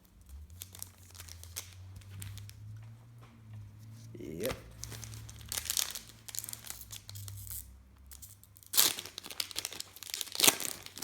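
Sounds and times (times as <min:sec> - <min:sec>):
wrapper tearing and crinkling: 0:00.5 - 0:02.6, 0:04.3 - 0:11.0.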